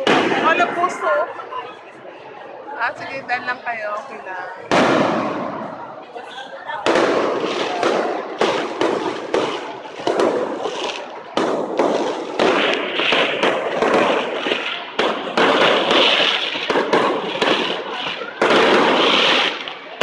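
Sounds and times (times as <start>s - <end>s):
fireworks bangs: 0.0s - 1.4s, 2.9s - 20.0s
fireworks crackling and hiss: 6.8s - 20.0s.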